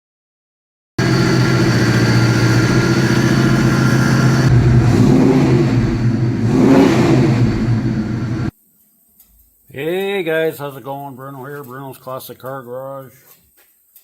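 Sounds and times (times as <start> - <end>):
car engine running: 1.0 - 8.5.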